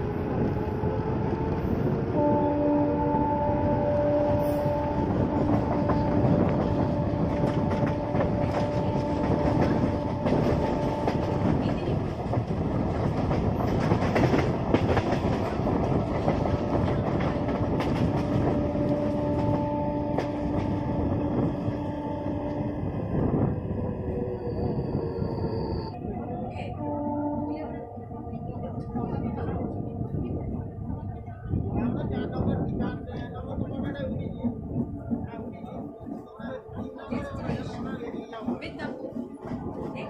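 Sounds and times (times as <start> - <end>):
train rumbling on track: 0.0 - 40.0.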